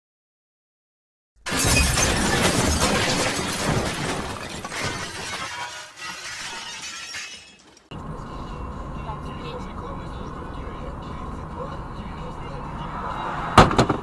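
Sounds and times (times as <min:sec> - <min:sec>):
car crash with glass shattering: 0:01.5 - 0:07.9.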